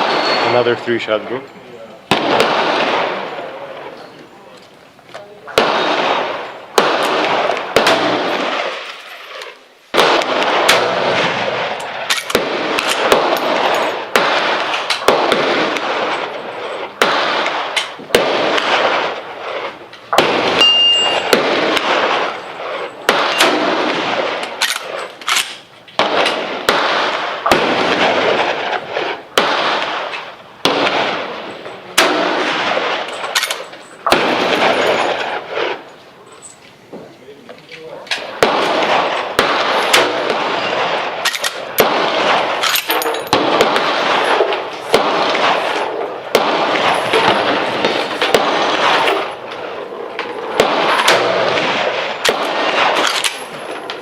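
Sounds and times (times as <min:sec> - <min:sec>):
rifle shots echoing: 0:00.0 - 0:01.4, 0:02.0 - 0:04.2, 0:05.4 - 0:36.0, 0:37.9 - 0:54.0
brief high ring: 0:20.6 - 0:21.3.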